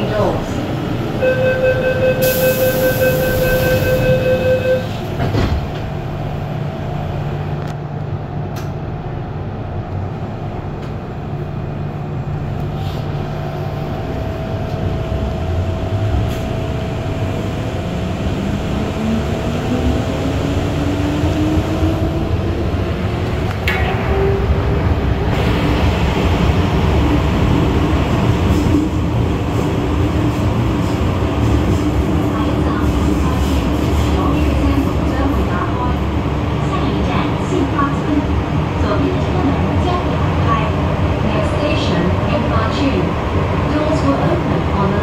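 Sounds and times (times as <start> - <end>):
train running noise: 0.0 - 45.0
beeping electronic tone: 1.2 - 4.9.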